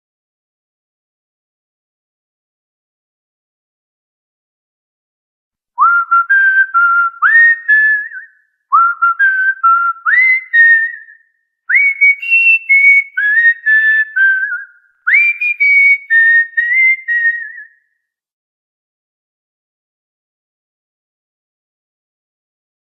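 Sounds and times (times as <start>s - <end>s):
person whistling a tune: 5.8s - 17.9s.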